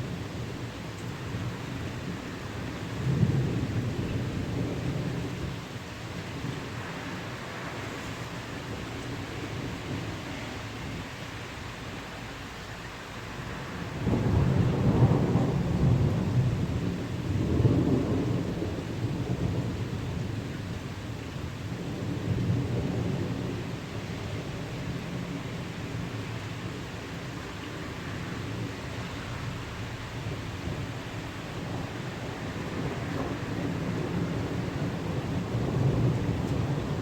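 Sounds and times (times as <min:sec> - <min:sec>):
rolling thunder: 0:00.0 - 0:11.4, 0:13.7 - 0:37.0.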